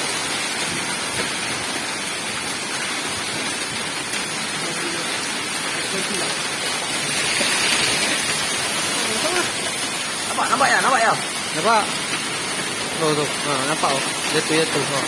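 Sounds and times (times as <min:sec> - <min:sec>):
hailstones clicking: 0:00.0 - 0:15.0
heavy rain and hail: 0:00.0 - 0:15.0.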